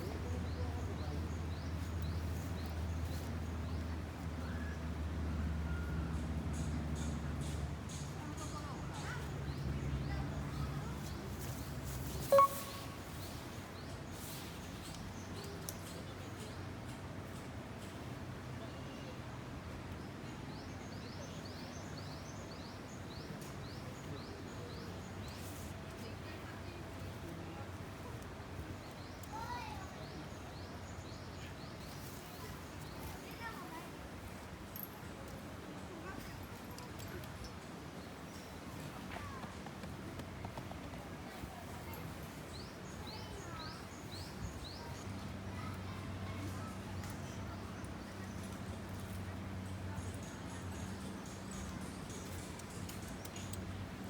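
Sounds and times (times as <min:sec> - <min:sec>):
outdoor background noise: 0:00.0 - 0:54.0
bird whistling: 0:12.2 - 0:13.1
bird chirping: 0:12.2 - 0:16.5.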